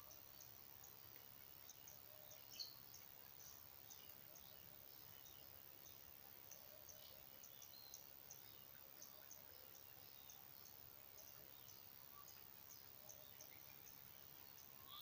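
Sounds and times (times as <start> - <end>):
faint bird calls: 14.6 - 15.0.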